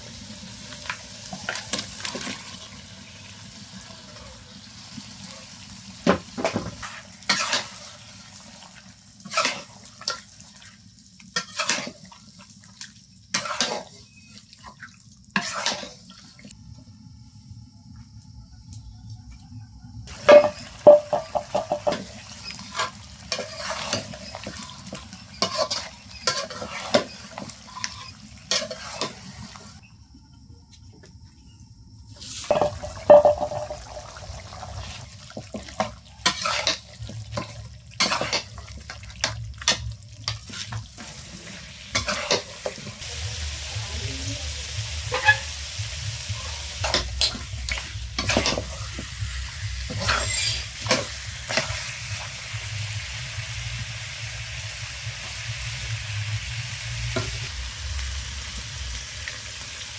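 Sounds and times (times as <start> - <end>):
food sizzling: 0.0 - 16.6, 20.1 - 29.8, 32.2 - 59.9
metal spoon scraping a pot: 15.4 - 16.0, 20.3 - 29.3, 36.2 - 36.8, 45.1 - 45.5, 49.9 - 51.1.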